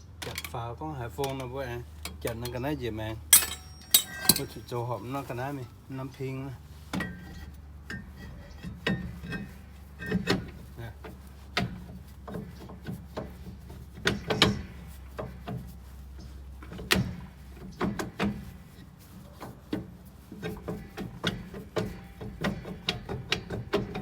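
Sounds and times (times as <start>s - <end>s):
steady low hum: 2.7s - 19.2s
clicks and knocks of tools: 3.4s - 4.8s.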